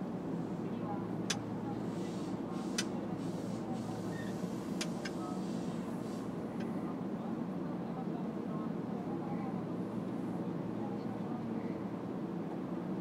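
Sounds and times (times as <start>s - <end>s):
electric train rumbling: 0.0s - 7.1s.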